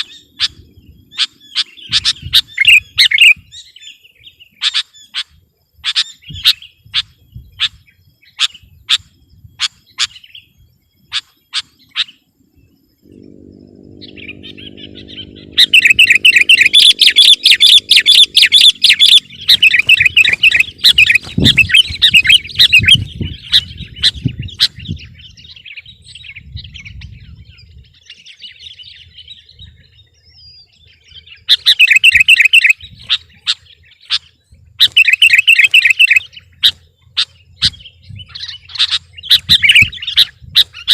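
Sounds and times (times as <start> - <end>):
bird chattering song: 0.0 - 40.9
sharp bird chips: 15.2 - 24.9, 31.5 - 40.9.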